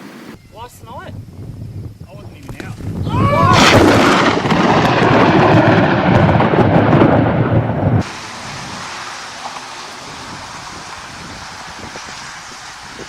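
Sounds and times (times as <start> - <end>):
loud rolling thunder: 2.8 - 12.2
steady hiss: 8.0 - 13.0.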